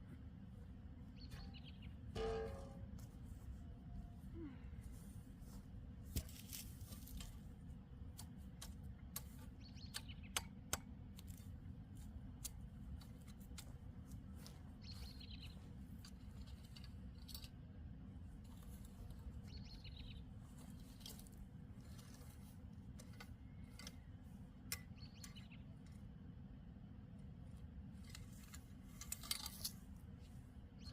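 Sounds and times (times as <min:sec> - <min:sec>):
steady low rumble: 0:00.0 - 0:09.1
small bird chirping: 0:01.0 - 0:02.0, 0:09.6 - 0:10.4, 0:14.8 - 0:15.7, 0:19.4 - 0:21.1, 0:24.8 - 0:25.7.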